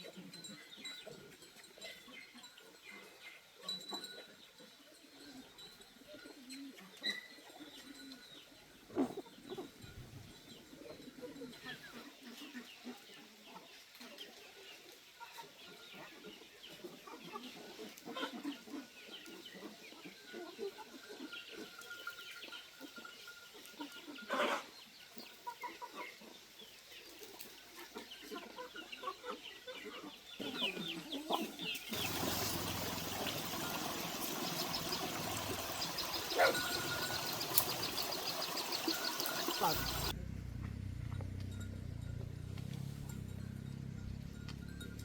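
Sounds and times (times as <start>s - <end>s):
chickens clucking: 10.5s - 40.2s.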